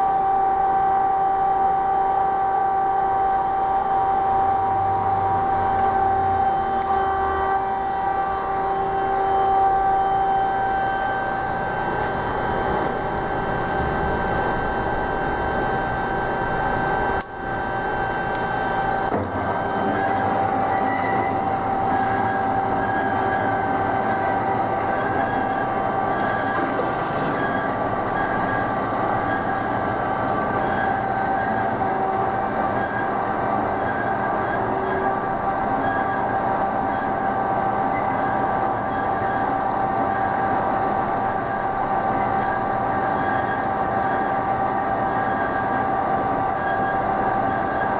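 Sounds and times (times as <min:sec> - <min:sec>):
saw blade whine: 0:00.0 - 0:47.9
band saw running: 0:03.8 - 0:36.3.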